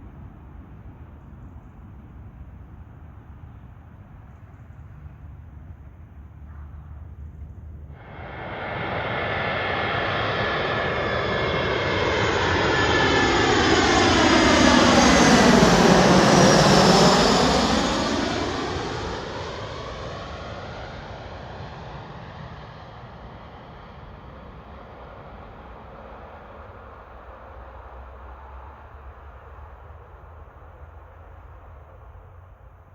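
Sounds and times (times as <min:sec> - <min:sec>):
jet airliner passing overhead: 0:07.9 - 0:32.5.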